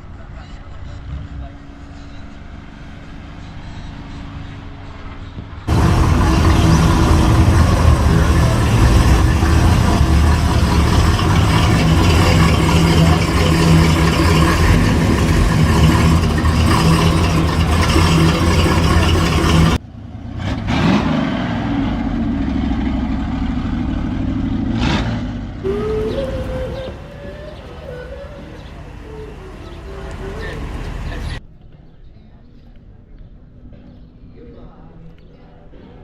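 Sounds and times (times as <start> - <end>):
car engine rumbling: 5.6 - 20.3, 21.6 - 31.4.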